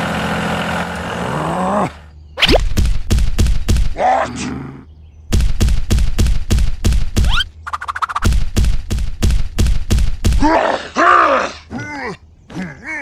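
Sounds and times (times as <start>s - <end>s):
heavy thumps: 2.6s - 4.0s, 5.3s - 7.4s, 8.2s - 10.5s.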